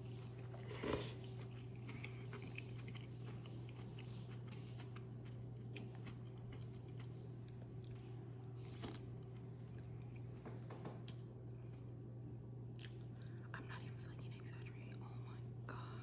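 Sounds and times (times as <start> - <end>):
steady low hum: 0.0 - 16.0
person chewing food: 0.1 - 10.4, 12.8 - 13.4.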